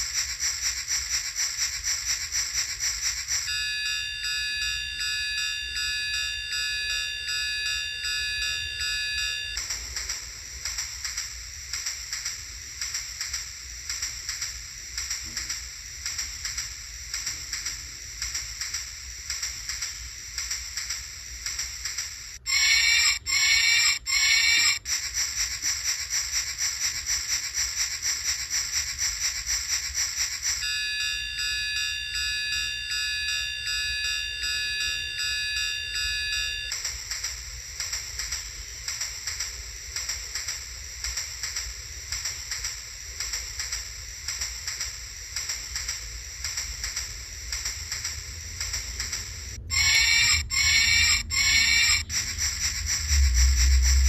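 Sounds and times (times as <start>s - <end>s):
loud steady tones: 0.0s - 54.0s
steam locomotive chugging: 0.0s - 54.0s
toy speaker train whistle blasts: 3.2s - 9.8s, 22.3s - 37.0s, 49.6s - 54.0s.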